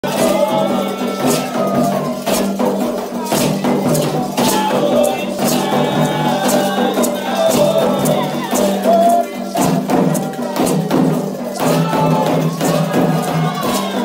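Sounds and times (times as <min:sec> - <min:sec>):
shakers and rattles: 0:00.0 - 0:14.0.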